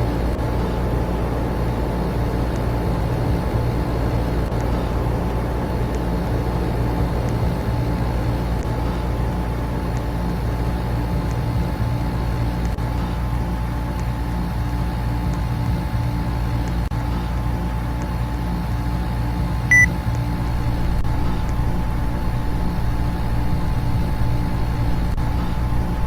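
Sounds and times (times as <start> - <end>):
air conditioner and fans humming: 0.0 - 26.0
thin steady tone: 19.7 - 26.0.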